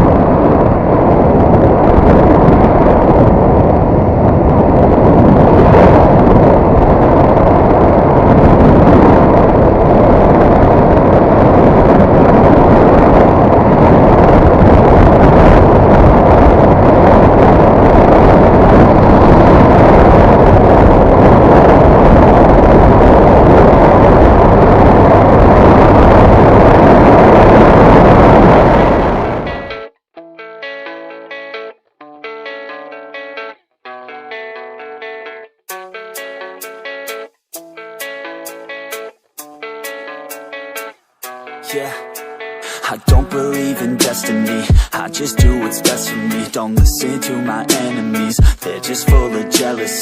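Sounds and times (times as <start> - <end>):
motorcycle road noise: 0.0 - 29.8
wind rushing: 0.0 - 29.9.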